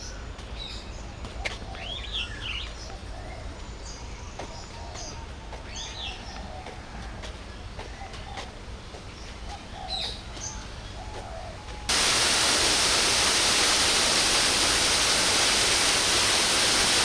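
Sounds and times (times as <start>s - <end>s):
waterfall rushing: 11.9s - 17.0s.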